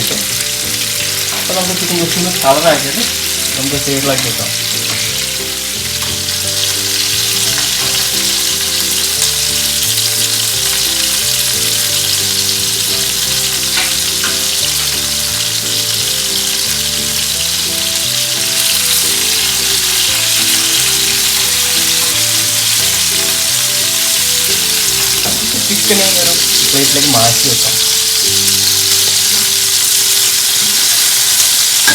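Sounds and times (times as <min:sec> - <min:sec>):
background music: 0:00.0 - 0:31.9
chicken sizzling in oil: 0:00.0 - 0:31.9.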